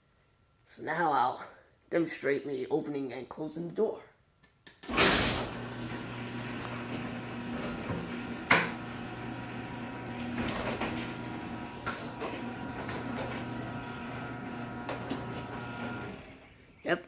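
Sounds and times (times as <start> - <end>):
garage door opener click: 4.8 - 16.6
garage door motor humming: 4.8 - 16.8.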